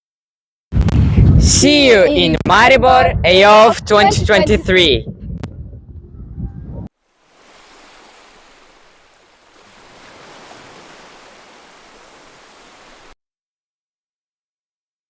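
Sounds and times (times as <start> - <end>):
low rumble: 0.8 - 6.9
sea waves washing on shore: 7.0 - 13.2.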